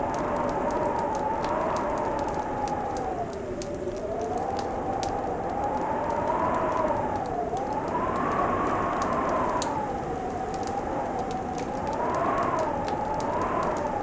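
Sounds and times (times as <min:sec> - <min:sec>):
crackling fire popping: 0:00.0 - 0:14.0
howling wind whistling: 0:00.0 - 0:14.0.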